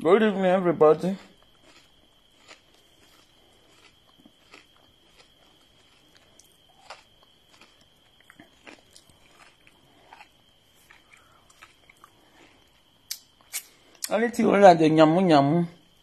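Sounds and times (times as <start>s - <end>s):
faint high-pitched whine: 0.0s - 16.0s
faint chewing of cucumber: 1.1s - 14.1s
mouth clicks and crackles: 13.1s - 14.2s.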